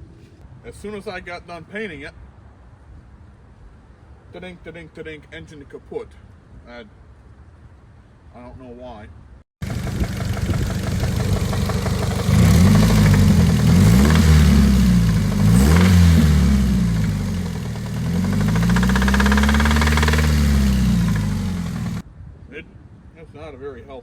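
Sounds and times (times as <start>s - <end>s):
car engine revving: 9.6s - 22.0s
engine knocking: 9.6s - 22.0s.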